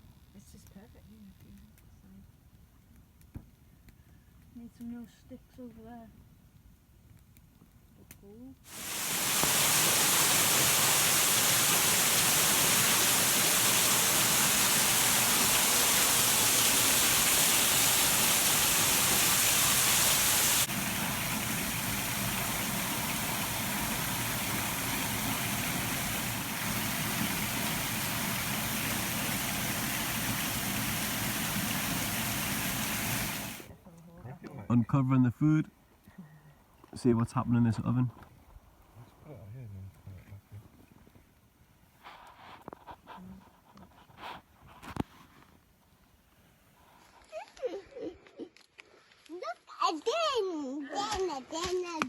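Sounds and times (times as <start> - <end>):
waterfall rushing: 8.7 - 33.7.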